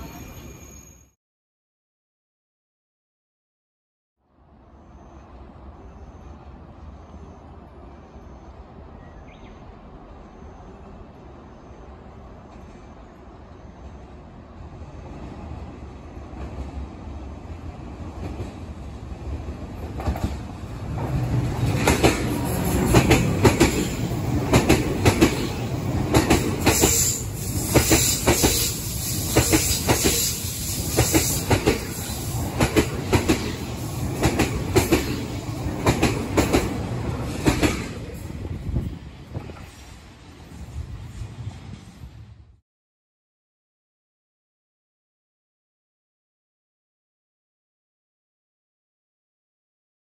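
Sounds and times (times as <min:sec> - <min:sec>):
train passing through station: 0:00.0 - 0:01.2, 0:04.2 - 0:42.6.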